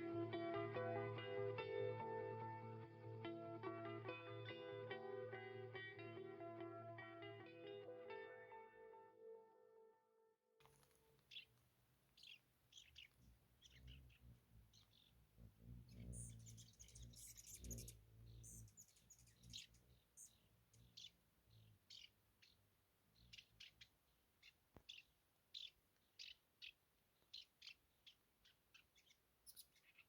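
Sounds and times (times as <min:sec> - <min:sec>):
faint small bird chirps: 0:10.6 - 0:30.0.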